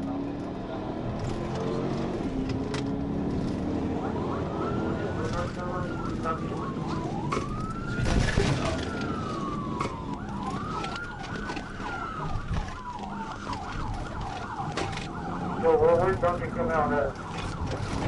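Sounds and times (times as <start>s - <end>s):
police siren wailing: 0.0s - 18.0s
road and engine noise: 0.0s - 18.0s
yelping siren: 3.8s - 18.0s.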